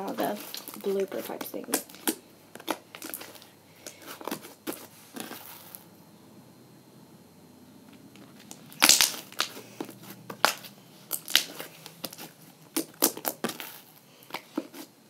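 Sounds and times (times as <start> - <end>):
slime squeezed popping and crackling: 0.3 - 3.5, 8.4 - 9.6, 10.3 - 14.4.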